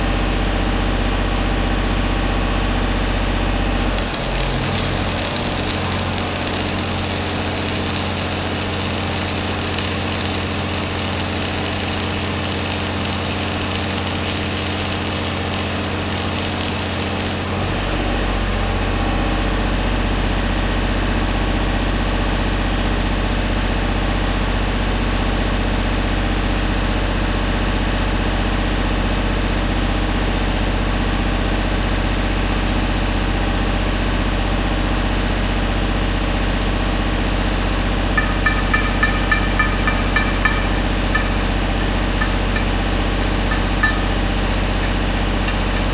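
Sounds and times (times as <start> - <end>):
machine running drone: 0.0 - 22.4, 37.1 - 45.9
arc welding hissing and crackling: 3.6 - 17.9, 37.9 - 45.9.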